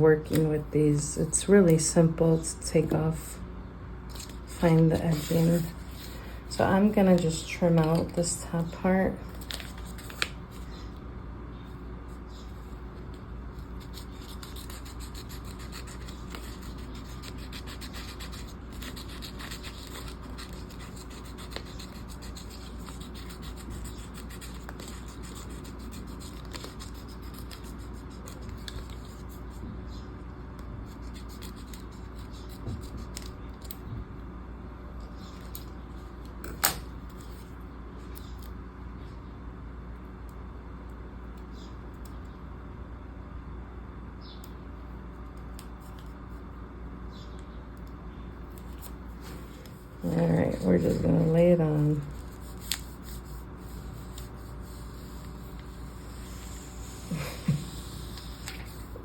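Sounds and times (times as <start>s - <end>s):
steady low hum: 0.0s - 59.0s
tape and paper scratching: 4.1s - 6.2s, 7.0s - 8.7s, 9.3s - 10.8s, 12.3s - 30.0s, 30.8s - 33.8s, 48.5s - 59.0s.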